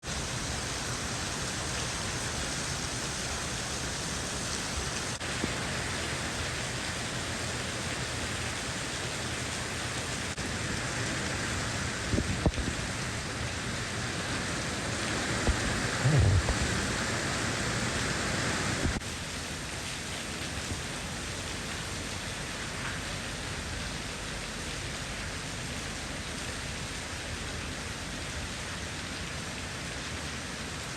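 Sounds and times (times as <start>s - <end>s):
heavy rain falling: 0.0s - 30.9s
low thumps: 15.5s - 16.8s.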